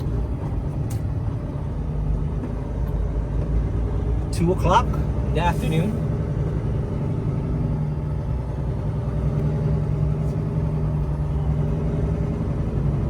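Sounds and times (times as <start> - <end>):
truck diesel engine droning: 0.0 - 13.0.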